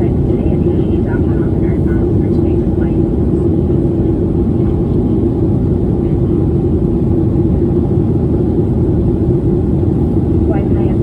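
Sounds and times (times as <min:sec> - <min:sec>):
airliner cabin engine roar: 0:00.0 - 0:11.0
constant low hum: 0:00.0 - 0:11.0.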